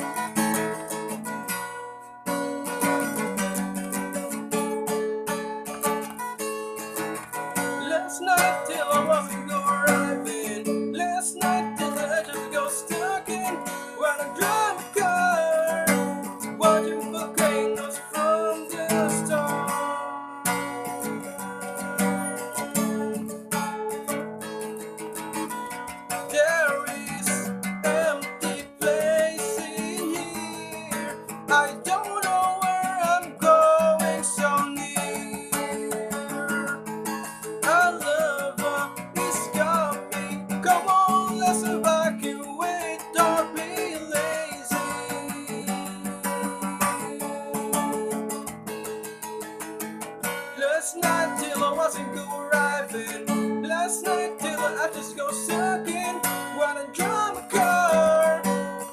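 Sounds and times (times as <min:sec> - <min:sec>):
strummed acoustic guitar: 0:00.0 - 0:58.9.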